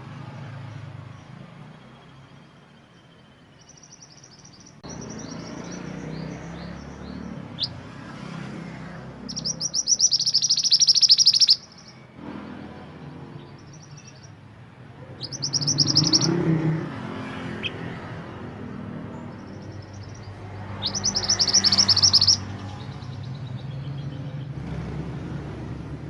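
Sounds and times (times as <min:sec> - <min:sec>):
songbird trilling and chirping: 0:02.0 - 0:08.0, 0:09.1 - 0:12.1, 0:13.4 - 0:14.4, 0:15.1 - 0:24.6.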